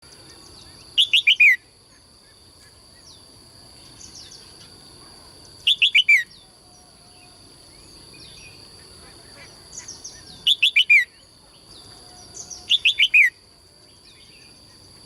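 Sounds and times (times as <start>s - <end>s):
faint bird chirps: 0.1s - 15.0s.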